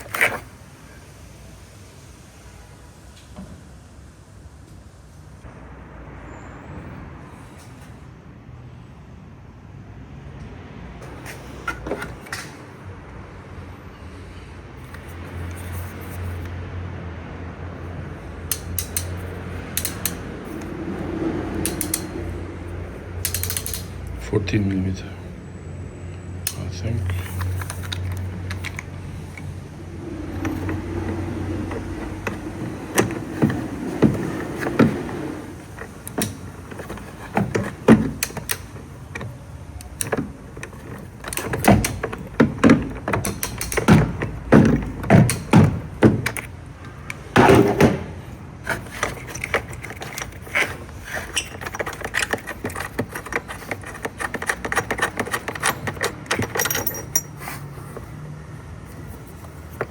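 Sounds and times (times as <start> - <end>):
metal tools clinking: 23.2 - 24.0, 48.7 - 58.1.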